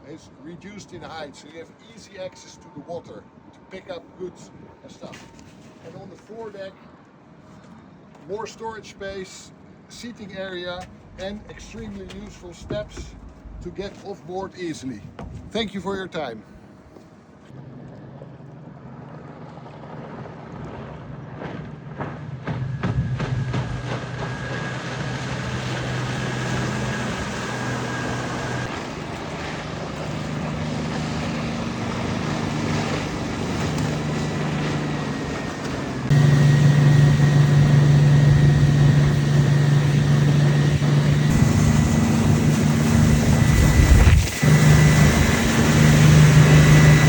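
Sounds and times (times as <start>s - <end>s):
boat engine running: 10.7s - 14.5s, 19.5s - 47.0s
wind noise: 10.9s - 14.1s, 22.0s - 47.0s
water rushing: 23.2s - 47.0s.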